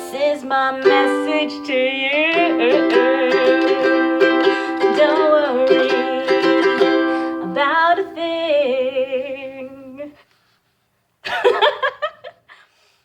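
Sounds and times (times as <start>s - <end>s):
person singing with vibrato: 0.0s - 10.3s.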